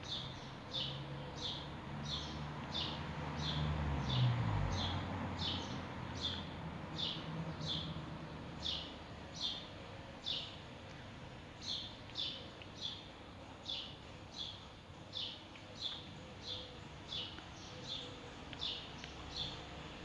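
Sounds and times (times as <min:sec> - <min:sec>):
bird chirping: 0:08.6 - 0:10.7, 0:11.6 - 0:19.8.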